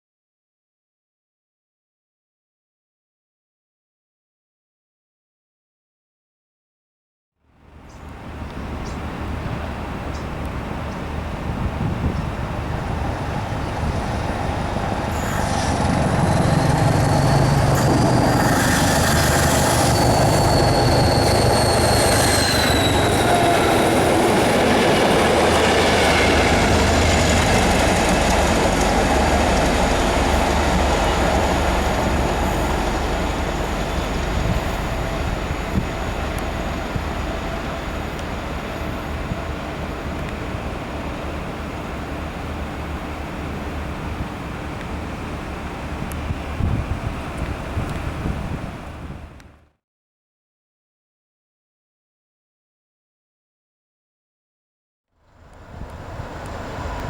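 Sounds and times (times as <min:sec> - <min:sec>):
diesel train passing: 0:07.6 - 0:49.5, 0:55.3 - 0:57.0
high-pitched wheel squeal: 0:15.1 - 0:27.1.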